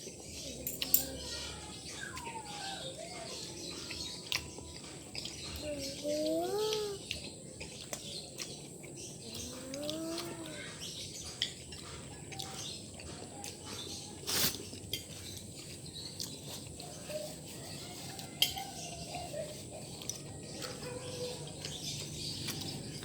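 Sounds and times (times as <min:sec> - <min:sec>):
chewing: 0:00.0 - 0:23.0
utensils clicking and tapping: 0:00.5 - 0:01.6, 0:14.8 - 0:23.0.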